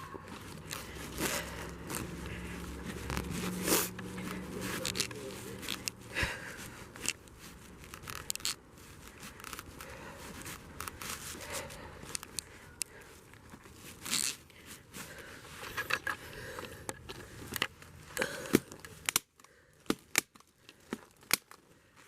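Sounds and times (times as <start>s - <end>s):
plastic sheeting crinkling: 0.0s - 11.8s.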